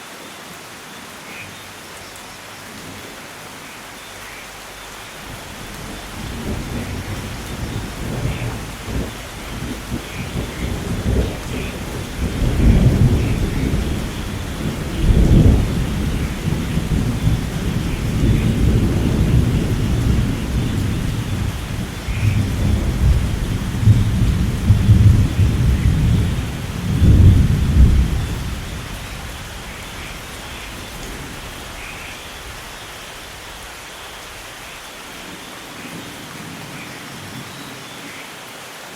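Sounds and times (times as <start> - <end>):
steady rain: 0.0 - 38.9
thunder rumbling: 5.2 - 33.4.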